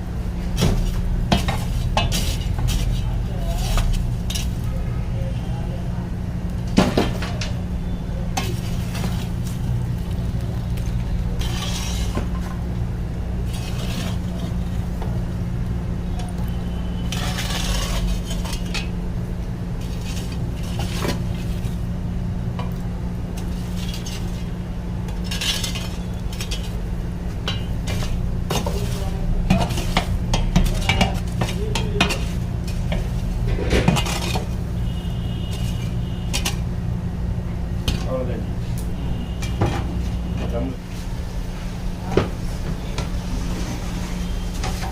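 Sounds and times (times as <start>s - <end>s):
steady low hum: 0.0s - 44.9s
metal utensils scraping cooking pot: 0.6s - 4.7s, 8.3s - 12.6s, 13.4s - 15.1s, 16.3s - 19.0s, 19.8s - 21.9s, 22.6s - 36.7s.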